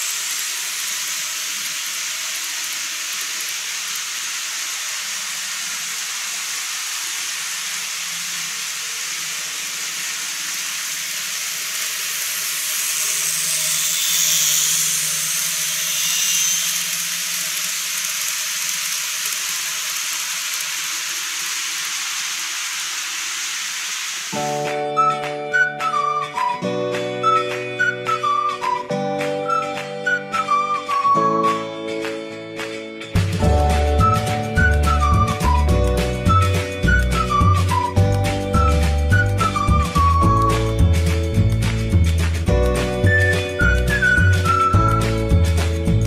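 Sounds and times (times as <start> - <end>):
model train wheels rattling on rails: 0.0 - 24.6
faint motor hum: 0.0 - 24.7.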